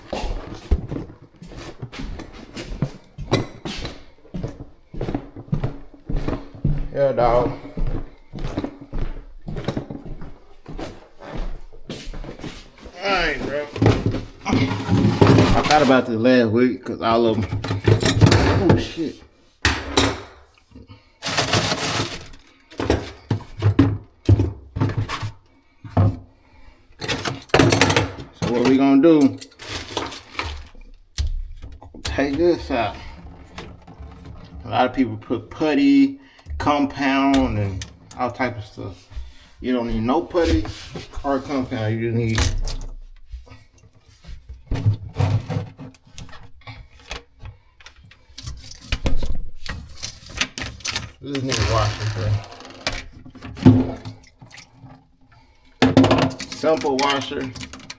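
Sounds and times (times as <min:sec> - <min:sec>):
tools and parts clattering: 0:12.3 - 0:16.0, 0:17.3 - 0:20.4, 0:21.2 - 0:25.4, 0:27.0 - 0:34.8, 0:44.6 - 0:54.2, 0:55.8 - 0:57.9.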